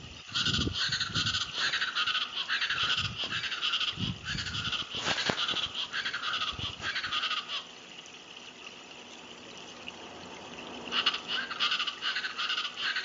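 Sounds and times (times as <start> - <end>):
birds calling in chorus: 0.2 - 7.8, 10.8 - 13.0.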